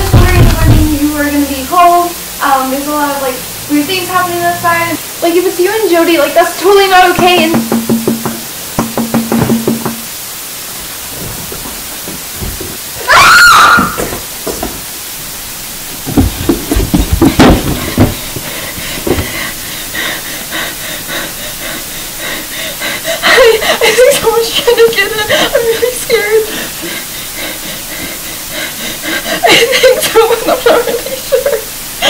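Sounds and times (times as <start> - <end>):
heavy thuds: 0.0 - 1.3, 7.1 - 10.2, 10.8 - 12.9, 16.0 - 19.6
woman screaming: 13.0 - 14.2
woman crying: 22.8 - 27.6, 28.6 - 31.8.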